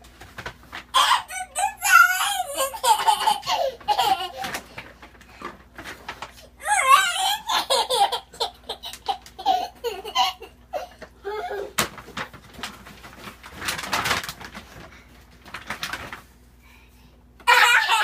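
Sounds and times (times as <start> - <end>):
child laughing and squealing: 1.0 - 4.5, 6.6 - 10.5, 17.5 - 18.0.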